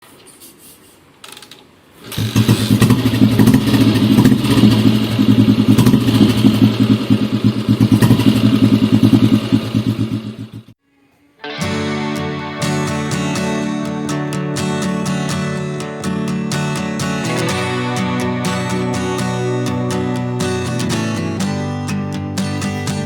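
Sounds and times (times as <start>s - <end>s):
motorcycle engine running: 2.1s - 10.8s.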